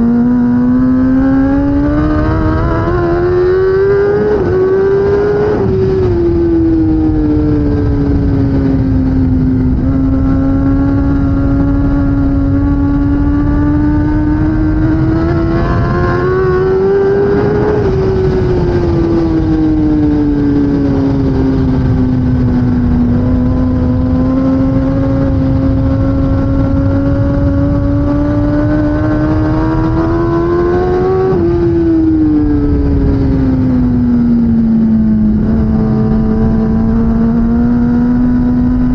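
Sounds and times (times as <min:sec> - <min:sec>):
wind rumble: 0:00.0 - 0:38.9.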